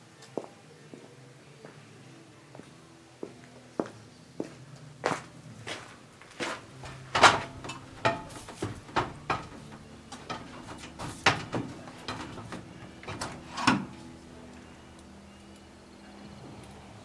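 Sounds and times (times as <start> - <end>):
objects knocking and clunking: 6.4 - 14.6.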